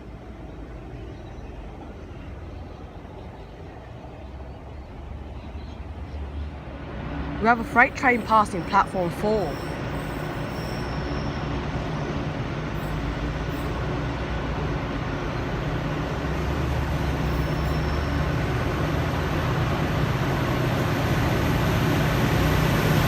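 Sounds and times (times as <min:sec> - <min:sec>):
diesel locomotive engine drone: 0:00.0 - 0:23.0
train wheels and wagons rumbling: 0:00.0 - 0:23.0.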